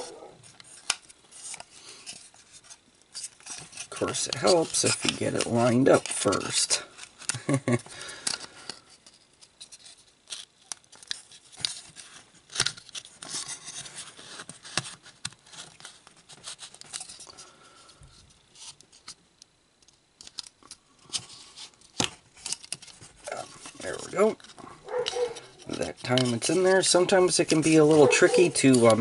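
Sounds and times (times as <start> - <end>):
plastic parts clicking and scraping: 0.0 - 29.0.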